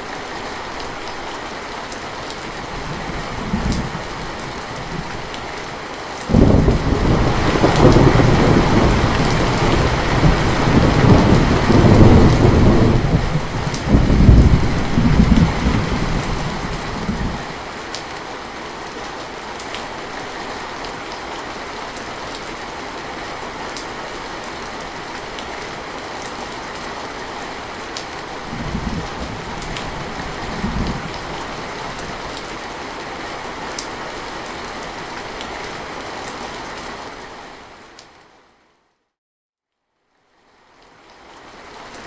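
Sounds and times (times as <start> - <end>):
steady rain falling: 0.0 - 38.8, 40.1 - 42.0
distant thunder rumbles: 6.3 - 17.5, 28.4 - 32.2.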